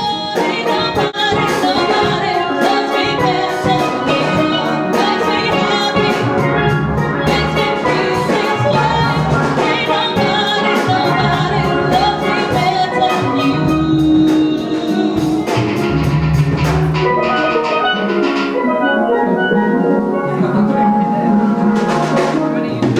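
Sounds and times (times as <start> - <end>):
steady drum beat: 0.0 - 17.2
steelpans playing a melody: 0.0 - 22.9.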